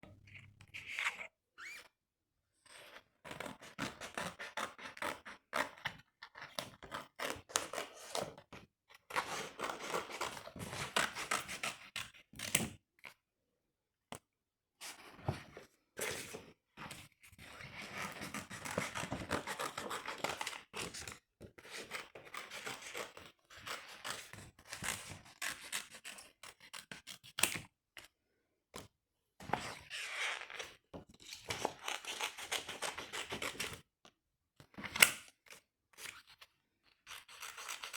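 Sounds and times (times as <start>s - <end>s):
scissors cutting paper: 3.3s - 8.4s, 9.1s - 12.7s, 17.7s - 27.6s, 30.6s - 33.8s, 37.1s - 37.9s.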